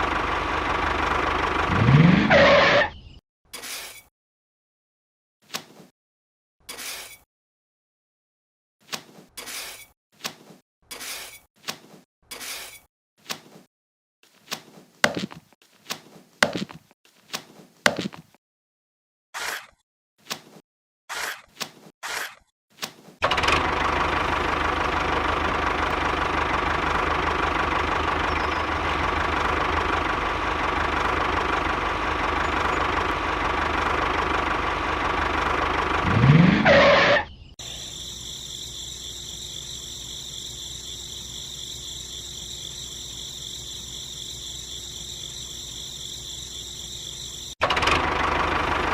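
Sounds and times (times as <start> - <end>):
motor running: 23.2 - 36.6, 37.6 - 48.9
high-pitched motor whine: 37.6 - 47.6.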